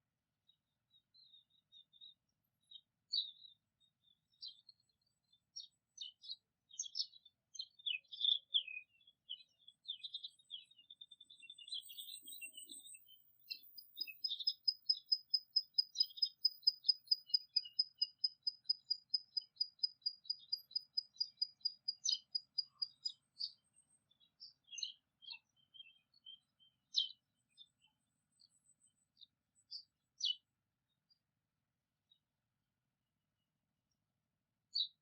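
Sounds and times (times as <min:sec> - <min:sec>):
short bird chirps: 0:07.7 - 0:30.4.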